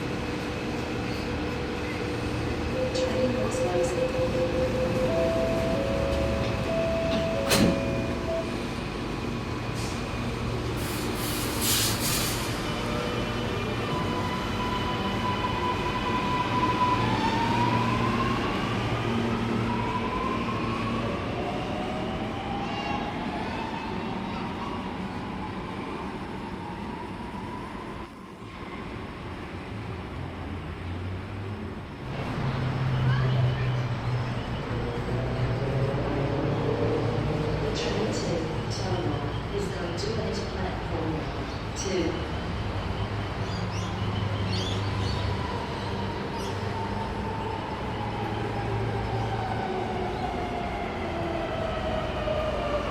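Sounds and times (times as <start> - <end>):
sharp clunk: 7.4 - 7.8
bursts of air hiss: 10.8 - 12.5.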